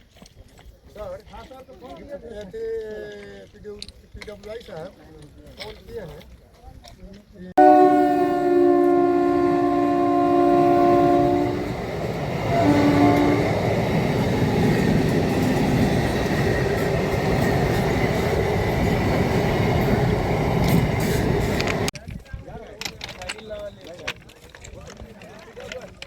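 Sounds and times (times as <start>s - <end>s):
train horn blast: 7.6s - 13.9s
train running on rails: 7.6s - 21.9s.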